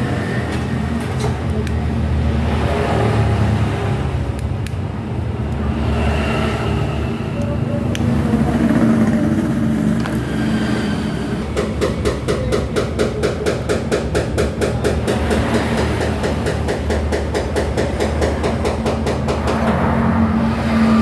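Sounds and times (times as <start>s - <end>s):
background traffic noise: 0.0s - 21.0s
rapid hammering: 11.4s - 19.9s.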